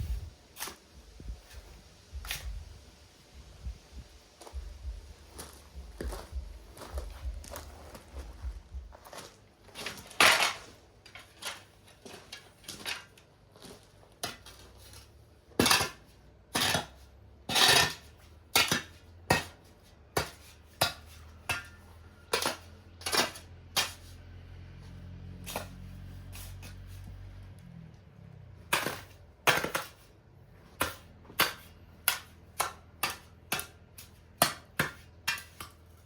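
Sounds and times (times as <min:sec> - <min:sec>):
low steady hum: 0:00.0 - 0:09.6
metal tool scraping cement: 0:15.6 - 0:24.2, 0:25.4 - 0:27.1, 0:28.7 - 0:30.1, 0:30.7 - 0:36.0.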